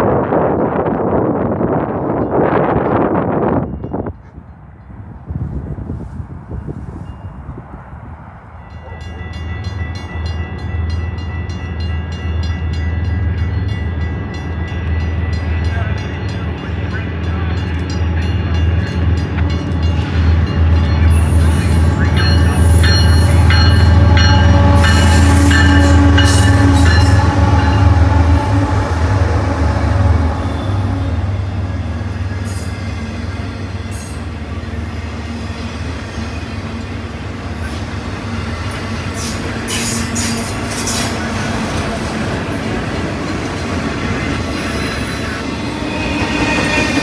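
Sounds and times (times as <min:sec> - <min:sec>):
diesel train low drone: 0:00.0 - 0:47.0
train wheels clicking on rails: 0:35.8 - 0:47.0.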